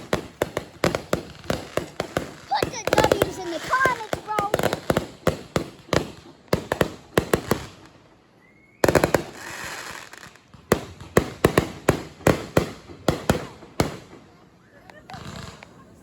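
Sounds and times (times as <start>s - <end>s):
fireworks bangs: 0.0s - 16.0s
rising firework whistle: 8.3s - 10.0s
firework hiss: 8.8s - 11.8s.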